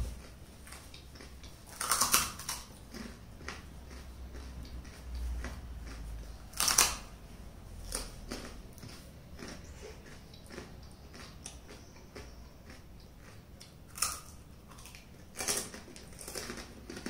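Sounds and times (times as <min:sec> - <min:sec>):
crunchy sweet being chewed: 0:00.0 - 0:17.0.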